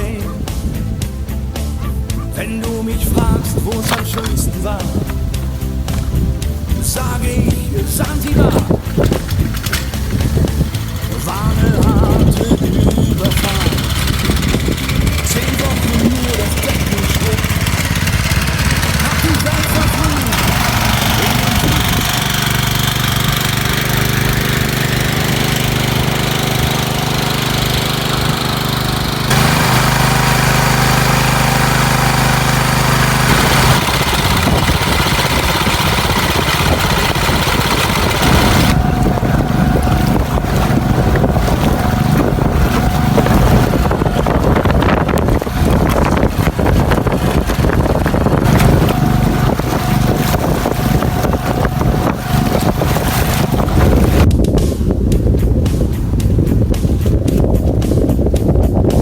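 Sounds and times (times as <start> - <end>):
wind on microphone: 0.0 - 28.6, 33.2 - 59.0
water rushing and splashing: 0.0 - 54.3
boat engine running: 0.0 - 59.0.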